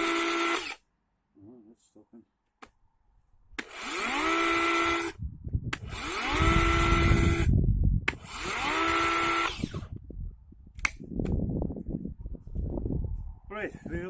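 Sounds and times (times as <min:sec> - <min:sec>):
electric chainsaw whining: 0:00.0 - 0:00.8, 0:03.6 - 0:05.2, 0:05.8 - 0:07.5, 0:08.1 - 0:09.9
click: 0:10.8 - 0:11.4.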